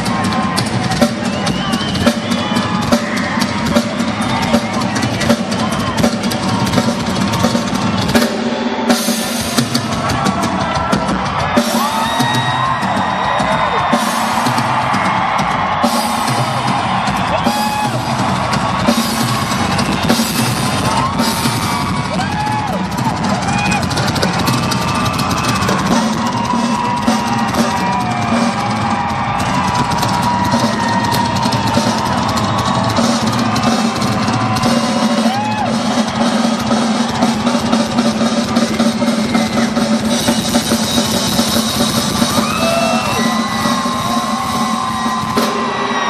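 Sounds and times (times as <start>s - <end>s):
drum kit rolls on snare: 0.0s - 46.0s
bass drum: 9.4s - 46.0s.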